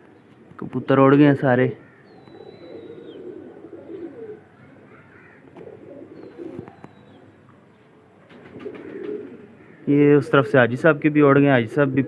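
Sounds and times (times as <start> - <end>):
pigeons cooing: 1.8 - 10.7.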